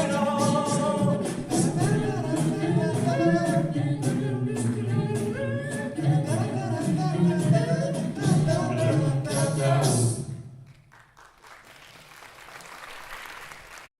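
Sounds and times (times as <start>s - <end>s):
percussive beat: 0.0s - 10.3s
a cappella group singing: 0.0s - 10.4s.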